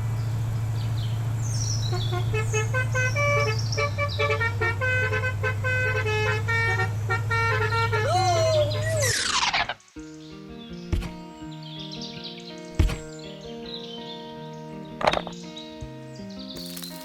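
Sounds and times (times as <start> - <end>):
rising and falling tone: 8.9 - 9.8
light music with plucked notes: 9.9 - 17.0.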